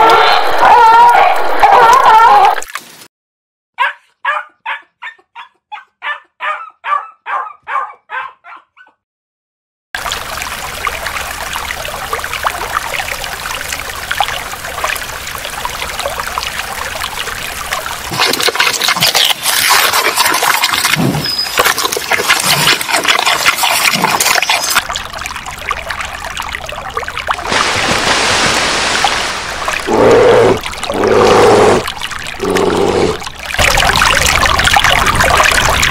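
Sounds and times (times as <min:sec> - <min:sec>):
fish splashing water: 0:10.0 - 0:35.9.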